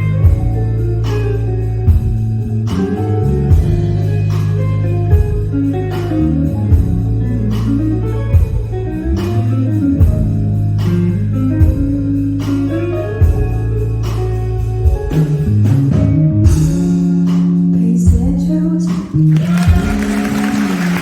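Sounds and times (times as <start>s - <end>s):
guitar melody: 0.0s - 21.0s
held bass notes: 0.0s - 21.0s
drum hits: 19.5s - 21.0s.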